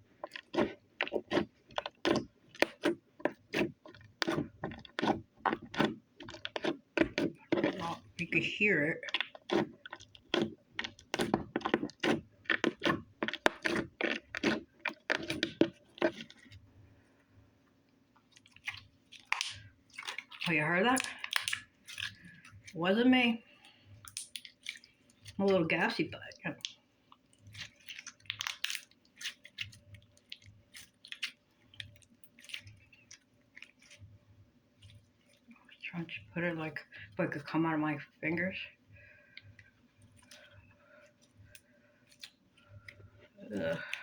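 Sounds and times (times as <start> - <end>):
slime squelching and popping: 0.0 - 16.7, 18.2 - 22.8, 24.0 - 34.2.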